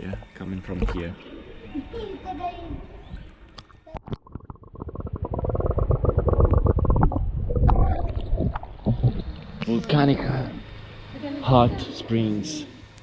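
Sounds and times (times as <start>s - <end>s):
hot spring water bubbling: 3.5s - 10.5s.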